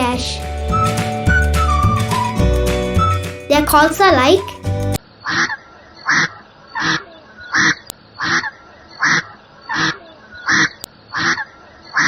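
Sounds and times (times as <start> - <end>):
duck quacking: 5.3 - 12.0.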